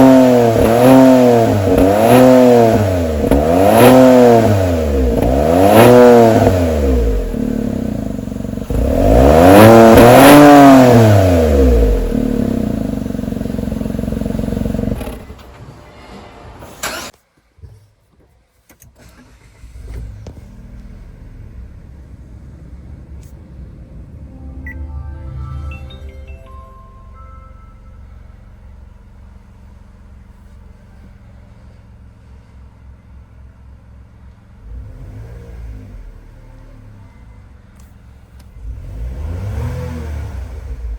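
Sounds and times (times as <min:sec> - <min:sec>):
car engine revving through muffler: 0:00.0 - 0:15.2, 0:34.6 - 0:37.0, 0:38.6 - 0:40.9
car engine idling: 0:06.6 - 0:10.3, 0:11.3 - 0:15.4, 0:19.6 - 0:24.3, 0:27.0 - 0:34.8.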